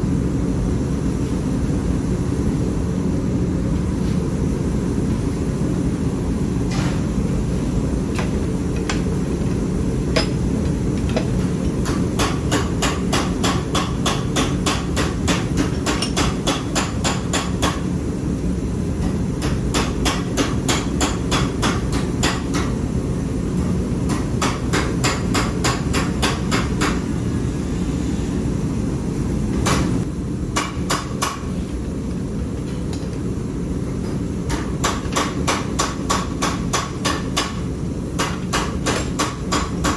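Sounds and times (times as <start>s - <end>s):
hammer striking hot metal: 10.1s - 10.5s, 11.2s - 17.9s, 19.4s - 22.7s, 24.1s - 27.0s, 30.6s - 31.5s, 34.5s - 37.6s, 38.2s - 39.9s.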